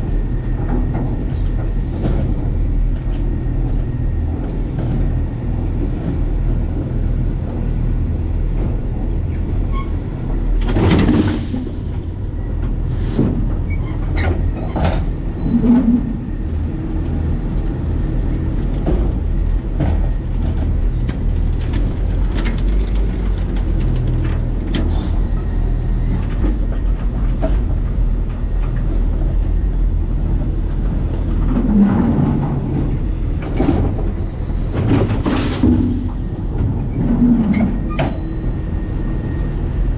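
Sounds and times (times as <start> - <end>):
garbage truck engine rumble: 10.2 - 39.9.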